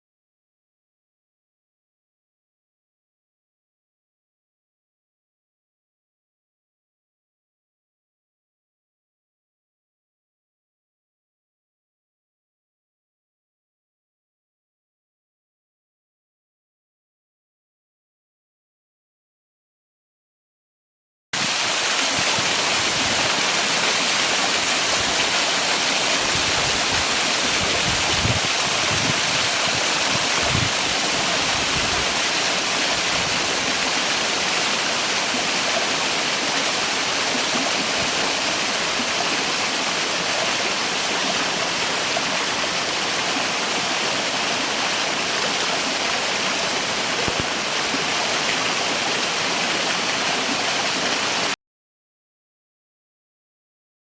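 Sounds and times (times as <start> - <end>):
waterfall rushing: 21.4 - 51.6.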